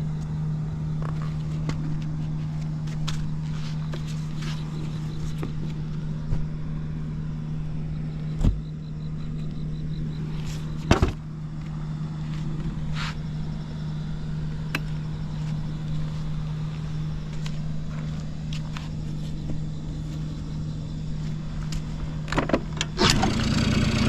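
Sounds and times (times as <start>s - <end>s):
moped engine idling: 19.8s - 24.0s.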